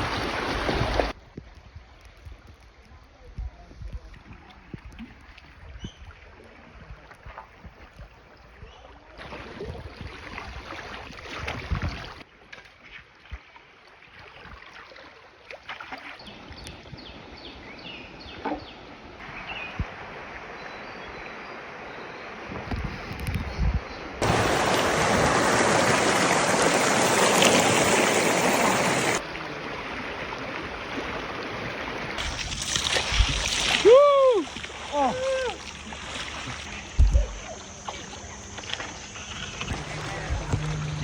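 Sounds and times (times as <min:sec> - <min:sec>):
river water rushing and splashing: 0:00.0 - 0:01.2, 0:24.2 - 0:41.0.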